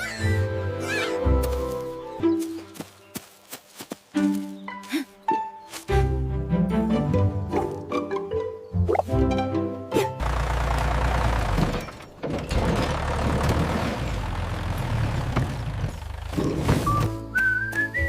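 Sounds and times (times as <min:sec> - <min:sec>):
person whistling a tune: 0:17.3 - 0:18.0.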